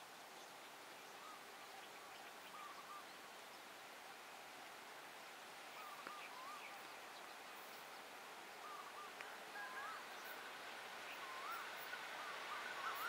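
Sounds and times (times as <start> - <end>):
faint outdoor hiss: 0.0 - 13.0
bird whistled warbling calls: 8.6 - 10.0, 11.1 - 13.0.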